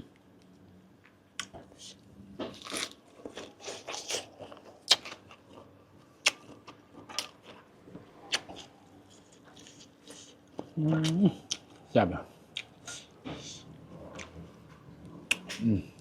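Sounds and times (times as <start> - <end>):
person chewing: 1.0 - 11.9, 12.5 - 14.4.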